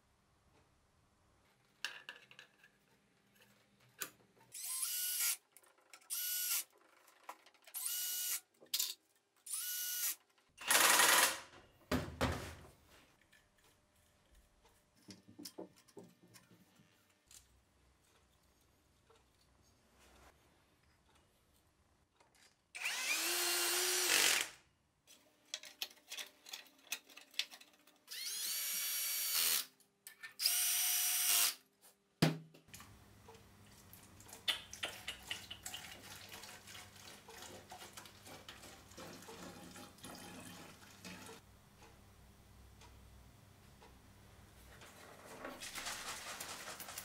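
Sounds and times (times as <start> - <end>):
cordless drill whining: 7.8 - 8.4, 9.5 - 11.3, 22.8 - 24.5, 28.1 - 29.6.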